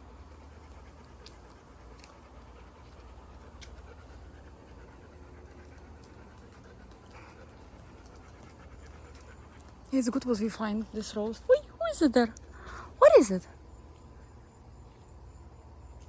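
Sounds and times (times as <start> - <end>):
dog panting softly: 0.0 - 13.0
faint clicks: 0.6 - 4.1, 5.3 - 10.0.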